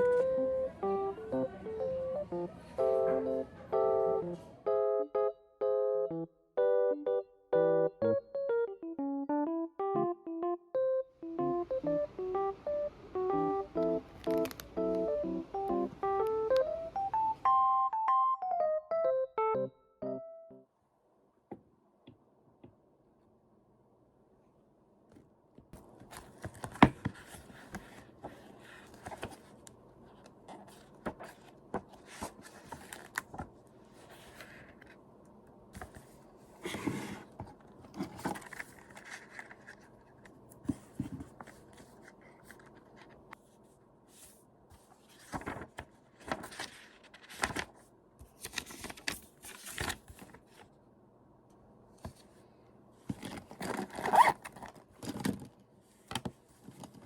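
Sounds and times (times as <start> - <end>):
paper rustling: 25.8 - 35.0, 35.8 - 43.5, 44.2 - 50.8.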